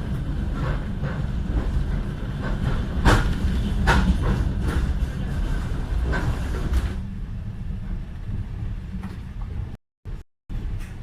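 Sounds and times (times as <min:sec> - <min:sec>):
electric train rumbling on track: 0:00.0 - 0:11.0
train wheels clacking over rail joints: 0:00.1 - 0:07.0.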